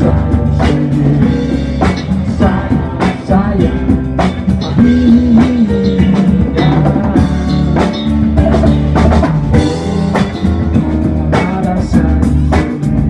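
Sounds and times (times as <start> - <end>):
bass drum and snare hits: 0.0 - 13.0
funk band playing: 0.0 - 13.0.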